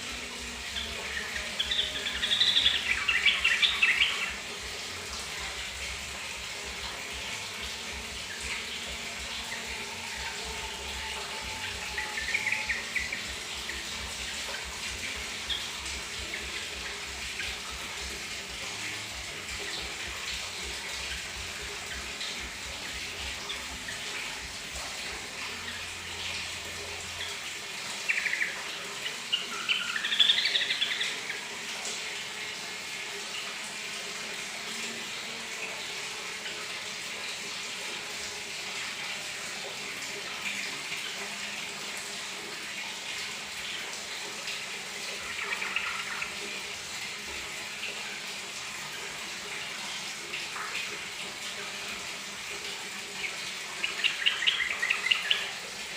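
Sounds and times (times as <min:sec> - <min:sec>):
tap water running: 0:00.0 - 0:55.9
bulbul singing: 0:00.7 - 0:04.4, 0:08.4 - 0:17.6, 0:53.7 - 0:55.6.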